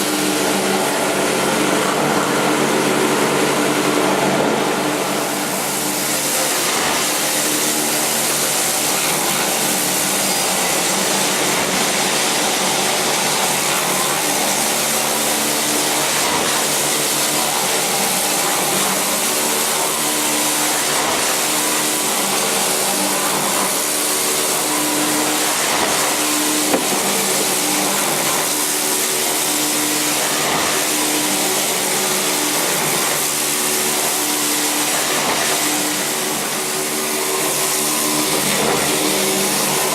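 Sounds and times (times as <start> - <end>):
machine motor humming: 24.3 - 29.7.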